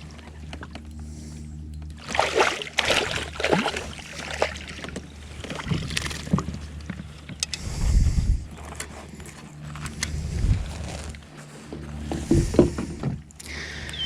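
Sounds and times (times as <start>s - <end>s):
steady low hum: 0.0s - 14.0s
splashy rustles: 2.0s - 6.5s.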